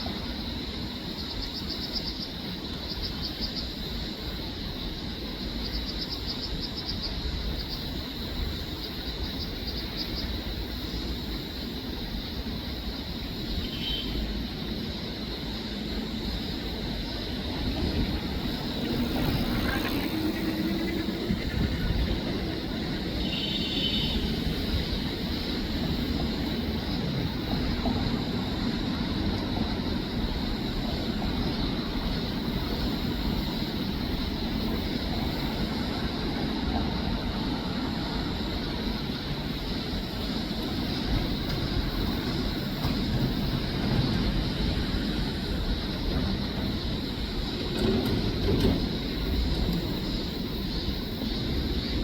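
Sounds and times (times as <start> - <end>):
low rumble of traffic: 0.0 - 52.0
steady high hiss: 0.0 - 52.0.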